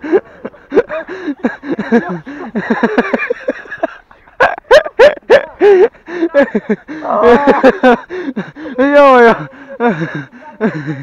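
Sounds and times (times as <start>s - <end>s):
people laughing: 0.0s - 11.0s
people's excited voices: 0.0s - 11.0s
people calling out: 5.2s - 11.0s.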